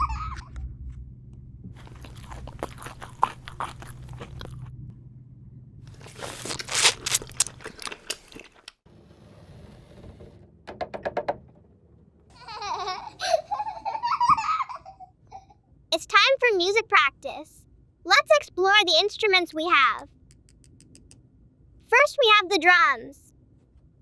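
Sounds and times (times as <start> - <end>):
crunching and clicking: 1.8 - 4.7, 5.9 - 8.8.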